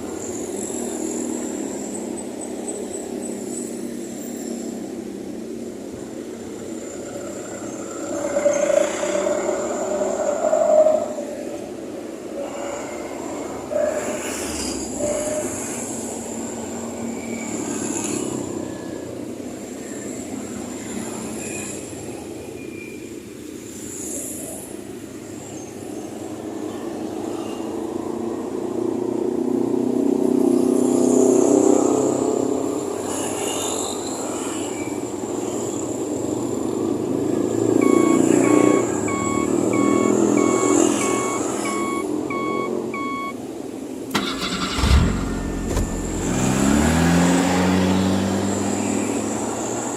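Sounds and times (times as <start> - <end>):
vehicle running: 36.2 - 49.9
electronic beeper: 37.8 - 43.4.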